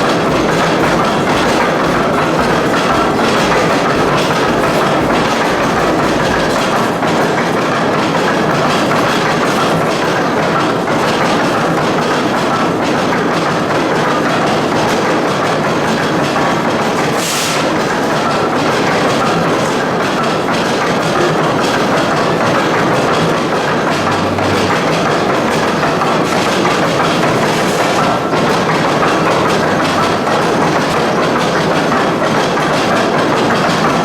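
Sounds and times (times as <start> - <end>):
steam machinery running: 0.0 - 34.0
steam hiss: 17.1 - 17.8.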